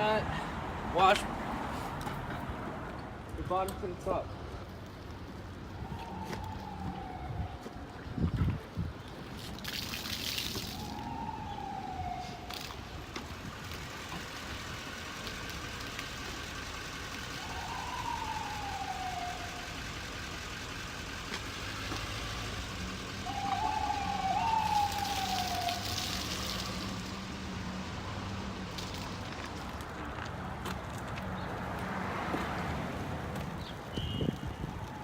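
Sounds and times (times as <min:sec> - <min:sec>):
distant siren wailing: 0:05.4 - 0:08.6, 0:10.2 - 0:30.0, 0:34.0 - 0:35.0.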